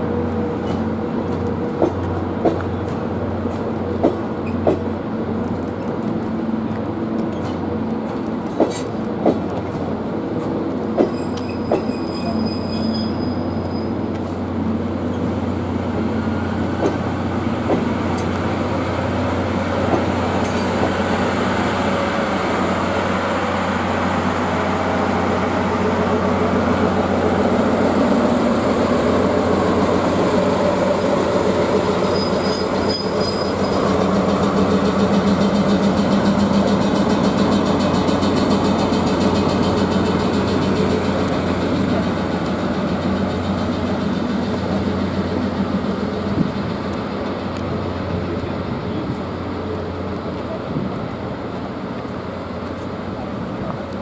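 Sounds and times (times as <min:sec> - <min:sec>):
diesel locomotive: 0:00.0 - 0:54.0.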